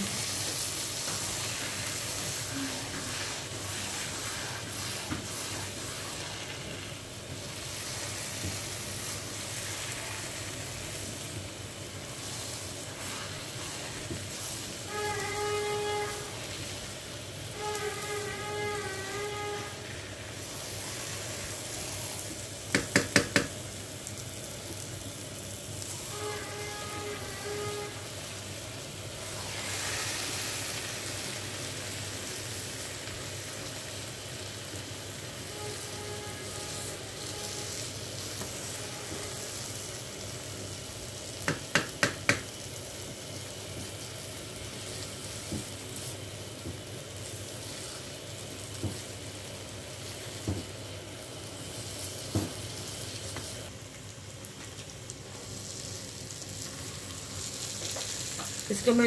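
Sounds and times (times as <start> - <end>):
carrots sizzling in a wok: 0.0 - 59.0
spoon tapping a pan: 22.7 - 23.6, 41.4 - 42.5.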